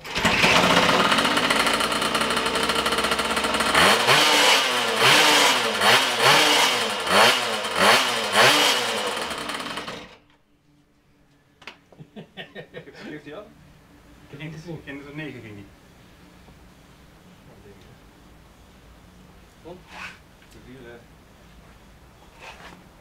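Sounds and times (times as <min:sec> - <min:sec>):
two-stroke motorbike engine revving: 0:00.0 - 0:10.2.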